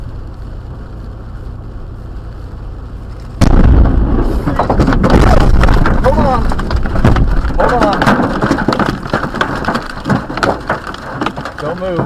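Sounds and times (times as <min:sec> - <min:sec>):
low steady rumble: 0:00.0 - 0:12.0
loud boom and rumbling crash: 0:03.4 - 0:11.0.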